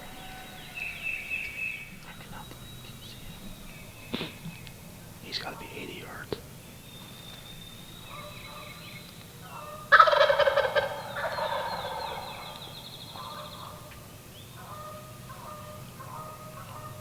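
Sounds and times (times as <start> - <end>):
songbirds singing faintly: 0.0 - 17.0
turkey gobbling: 9.4 - 14.0, 14.6 - 17.0.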